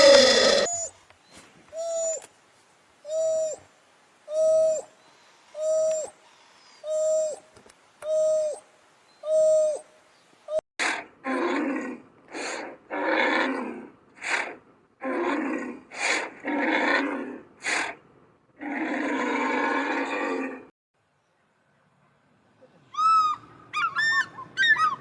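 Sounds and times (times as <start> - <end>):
animal hooting calls: 0.0 - 0.8
rough harsh animal calls: 0.0 - 0.9.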